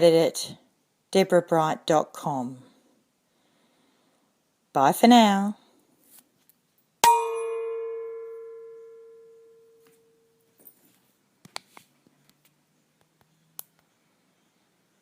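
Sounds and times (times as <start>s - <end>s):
metal chime ringing: 7.0s - 10.4s.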